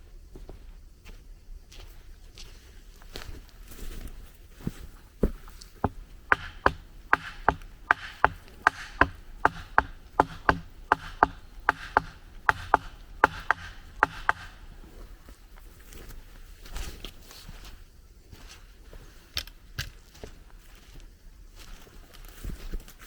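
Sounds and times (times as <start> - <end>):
tool striking wood: 5.2 - 15.0.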